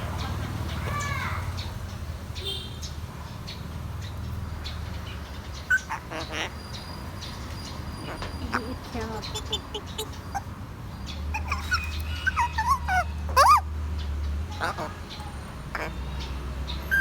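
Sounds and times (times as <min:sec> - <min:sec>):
parrot calls: 0:05.6 - 0:07.1, 0:07.9 - 0:13.8, 0:14.5 - 0:17.0.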